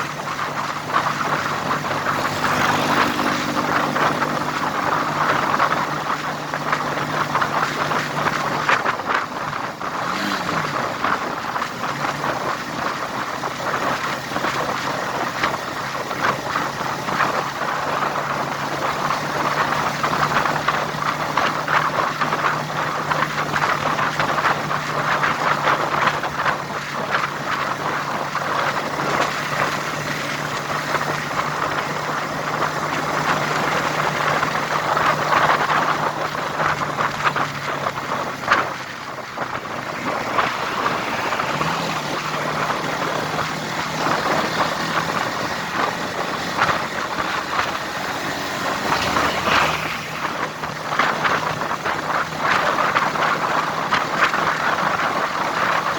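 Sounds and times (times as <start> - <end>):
road noise: 0.0 - 55.9
vehicle engine running: 0.0 - 55.9.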